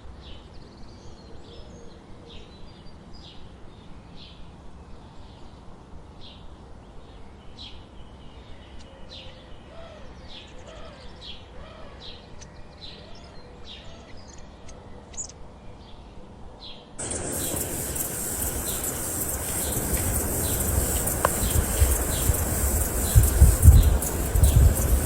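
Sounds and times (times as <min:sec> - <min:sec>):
faint background hiss: 0:14.2 - 0:25.0
bird chirping: 0:17.0 - 0:25.0.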